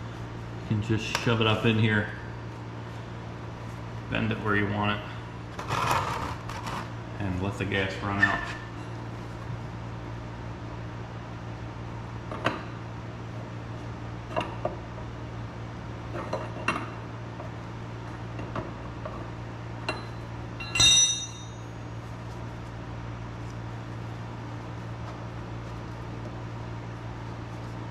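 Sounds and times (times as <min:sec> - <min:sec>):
steady low hum: 0:00.0 - 0:27.9
metal tools clinking: 0:19.9 - 0:21.8
ringing metallic clink: 0:19.9 - 0:21.9.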